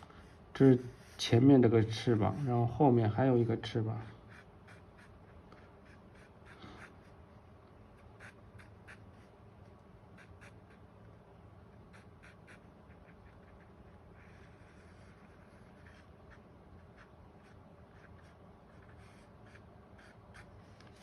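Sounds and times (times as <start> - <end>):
low room hum: 0.0 - 21.0
pencil scratching on paper: 4.2 - 7.2, 7.9 - 9.4, 10.1 - 11.2, 11.8 - 21.0.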